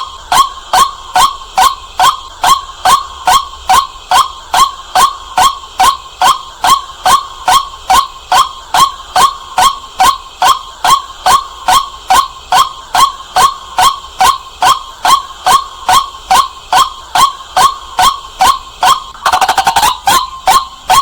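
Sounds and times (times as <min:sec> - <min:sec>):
waterhen calling: 0:18.8 - 0:21.0.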